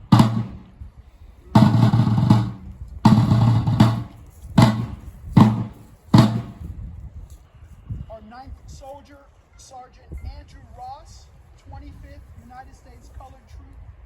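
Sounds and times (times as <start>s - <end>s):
deep drum beats: 0.0s - 0.8s, 1.6s - 6.7s
drum rolls: 0.0s - 0.8s, 1.6s - 6.7s.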